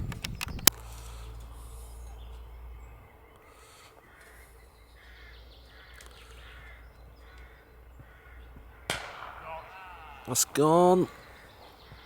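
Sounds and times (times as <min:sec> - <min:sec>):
faint low rumble: 0:00.0 - 0:09.6
crow cawing: 0:03.4 - 0:12.0.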